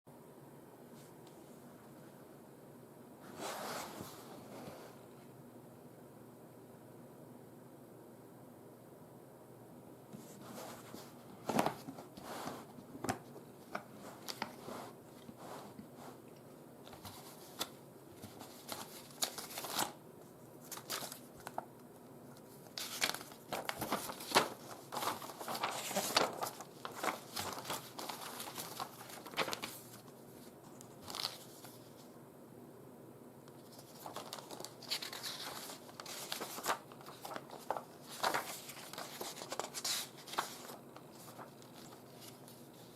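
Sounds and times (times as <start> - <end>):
crinkling rustles: 22.4 - 32.0, 33.6 - 42.9.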